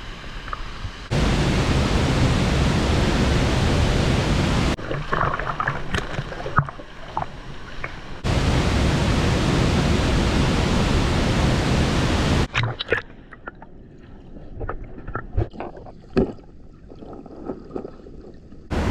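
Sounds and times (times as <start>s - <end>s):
waterfall rushing: 1.1s - 4.8s, 8.2s - 12.5s.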